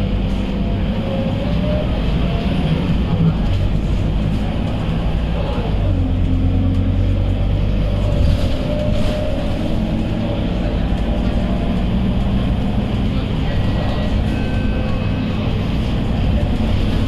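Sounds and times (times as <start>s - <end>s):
bus diesel engine running: 0.0s - 17.0s
road noise: 0.0s - 17.0s.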